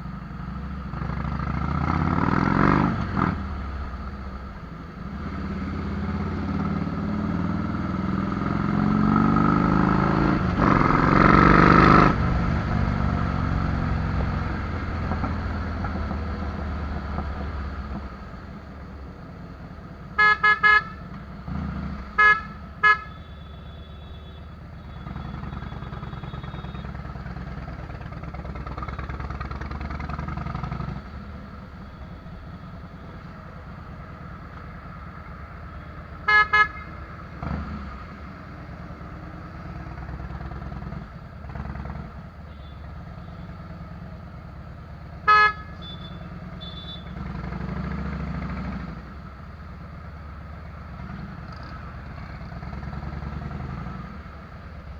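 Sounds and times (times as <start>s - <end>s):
motorcycle engine rumbling: 0.0s - 54.9s
horn toots: 20.1s - 27.2s, 35.8s - 37.6s, 45.2s - 47.4s.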